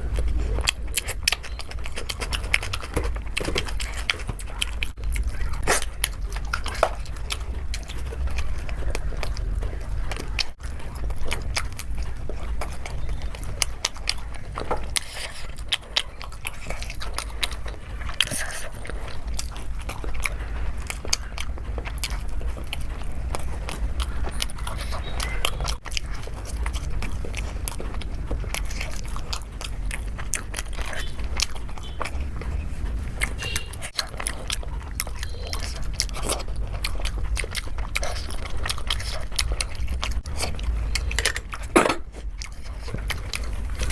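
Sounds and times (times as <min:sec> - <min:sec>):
mouth clicks and crunches: 0:00.0 - 0:43.9
person chewing food: 0:00.0 - 0:43.9
steady low hum: 0:00.0 - 0:43.9.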